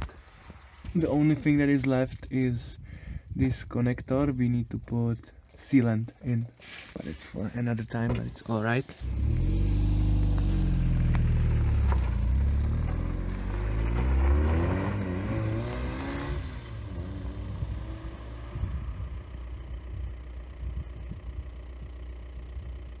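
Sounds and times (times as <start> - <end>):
car engine revving: 8.9 - 21.0.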